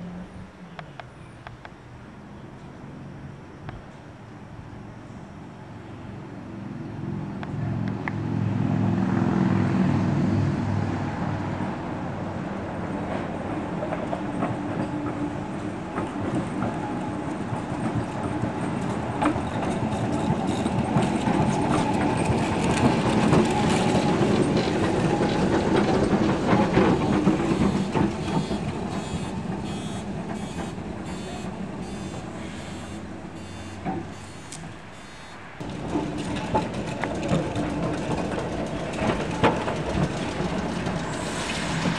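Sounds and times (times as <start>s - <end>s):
steel wheels rumbling on rails: 9.9s - 34.9s, 35.6s - 41.9s
tram motor hum: 13.0s - 41.9s.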